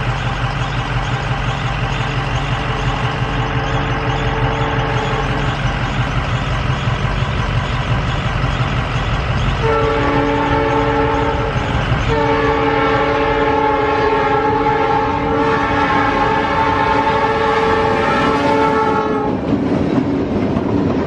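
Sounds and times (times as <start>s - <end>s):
low rumble of running train: 0.0s - 21.0s
train chime horn blasts: 2.6s - 5.6s, 9.6s - 19.4s.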